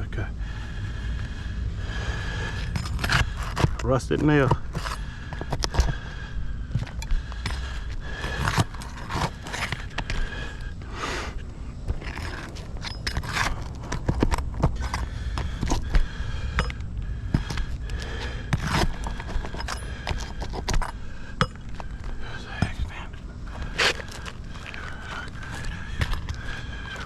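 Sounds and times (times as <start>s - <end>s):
low rumble: 0.0s - 3.8s
shingles scraping and clicking: 2.6s - 6.0s, 6.8s - 10.3s, 11.9s - 16.0s, 17.4s - 21.0s, 23.5s - 27.0s.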